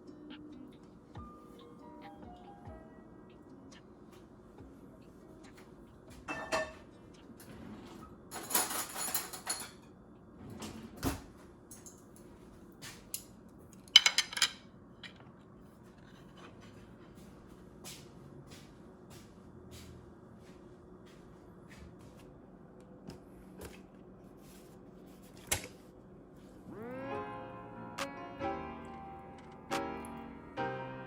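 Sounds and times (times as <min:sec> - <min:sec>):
dishes clinking: 0:06.2 - 0:09.9
utensils rattling clatter: 0:07.4 - 0:09.9.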